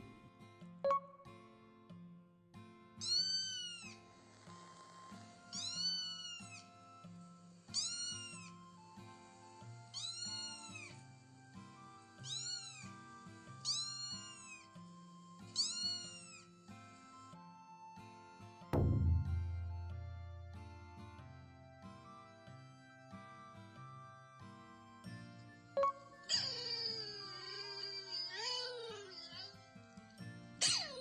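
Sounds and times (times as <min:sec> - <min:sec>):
cat meowing: 0:03.0 - 0:04.0, 0:05.6 - 0:06.6, 0:07.8 - 0:08.5, 0:10.0 - 0:10.9, 0:12.2 - 0:12.8, 0:13.6 - 0:14.6, 0:15.6 - 0:16.3
gentle background music: 0:03.0 - 0:31.0.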